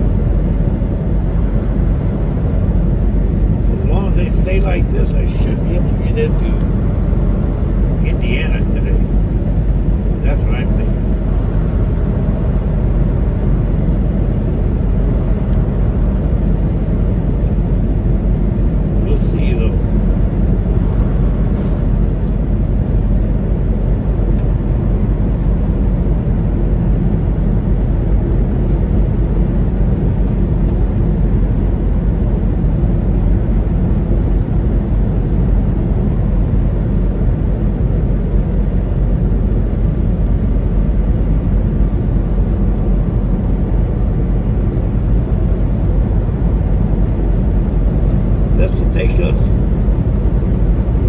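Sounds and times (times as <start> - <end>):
road noise: 0.0 - 51.0
truck engine drone: 0.0 - 51.0.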